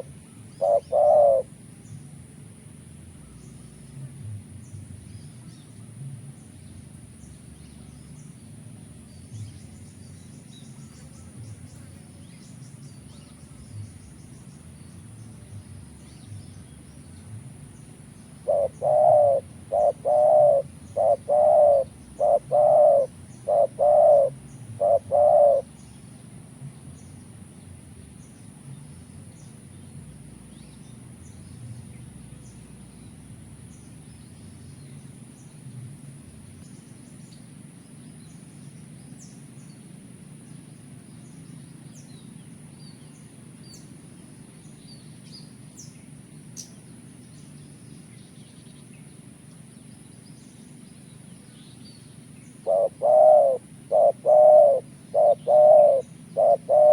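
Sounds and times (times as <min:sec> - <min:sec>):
dove cooing: 0:00.0 - 0:01.6, 0:18.3 - 0:25.8, 0:52.6 - 0:56.9
small birds chirping: 0:00.0 - 0:02.2, 0:02.9 - 0:56.9.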